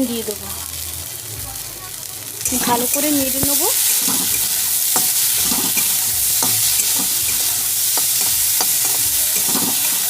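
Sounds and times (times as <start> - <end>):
corn sizzling in hot oil: 0.0 - 10.0
spoon scraping and knocking pan: 2.4 - 10.0.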